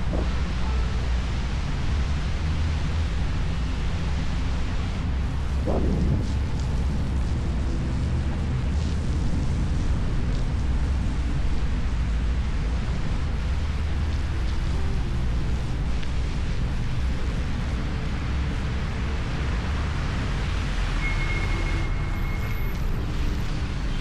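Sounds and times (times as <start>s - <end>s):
road noise: 0.0s - 24.0s
wind rushing over microphone: 4.0s - 13.3s.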